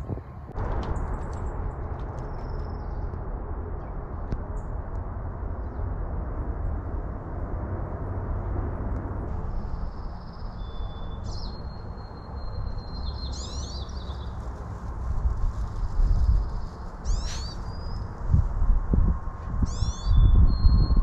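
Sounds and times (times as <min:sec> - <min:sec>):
steady low rumble: 0:00.0 - 0:21.0
birds chirping: 0:09.4 - 0:14.7, 0:15.9 - 0:18.4, 0:19.6 - 0:21.0
birds whistling: 0:09.6 - 0:14.4, 0:16.1 - 0:18.1, 0:19.7 - 0:21.0.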